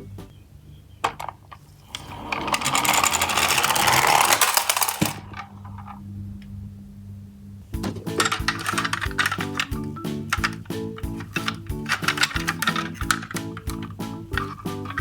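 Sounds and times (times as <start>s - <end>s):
toy truck wheels rattling: 1.1s - 5.9s, 7.8s - 15.0s.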